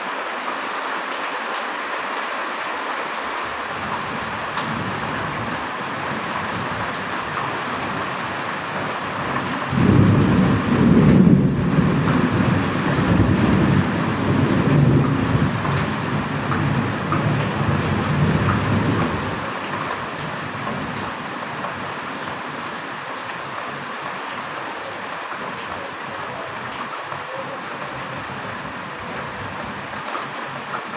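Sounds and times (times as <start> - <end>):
heavy rain: 0.0 - 30.9
thunder rolling: 9.1 - 19.5.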